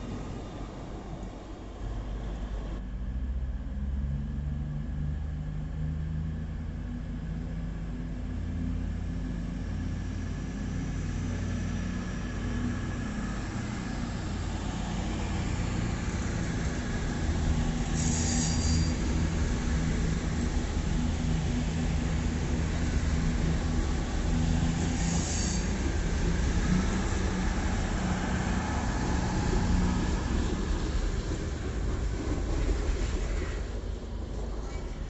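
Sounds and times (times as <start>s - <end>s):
diesel train engine rumbling: 0.0s - 35.0s
high-pitched squeal: 17.8s - 19.4s, 24.8s - 26.1s.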